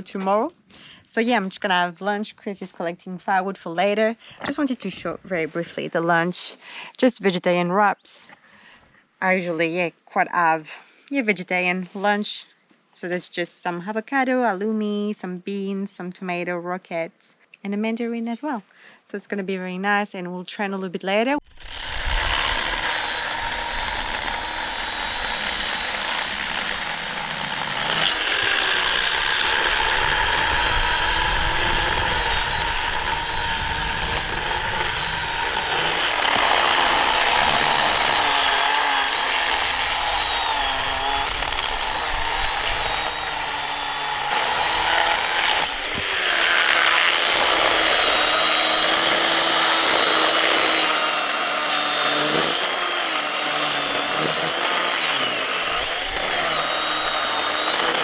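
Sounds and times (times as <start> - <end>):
chainsaw cutting wood: 21.5 - 58.0.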